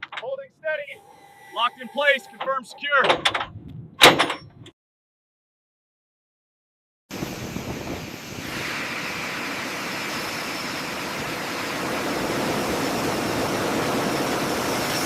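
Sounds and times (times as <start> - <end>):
faint high whine: 0.6 - 3.1
aircraft engine rushing: 7.1 - 15.0.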